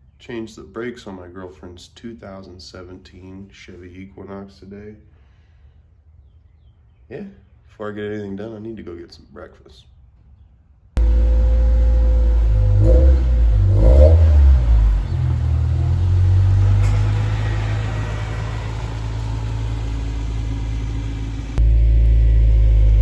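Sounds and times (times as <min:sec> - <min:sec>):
car engine and road rumble: 0:11.0 - 0:23.0.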